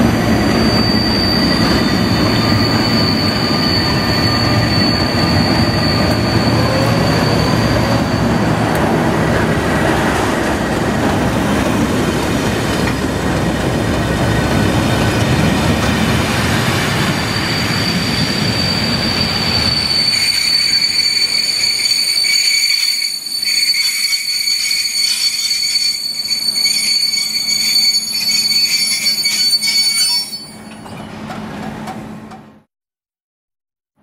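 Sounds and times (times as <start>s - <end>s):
train wheels rumbling: 0.0s - 32.6s
high-pitched brake squeal: 0.2s - 8.7s, 16.7s - 31.3s.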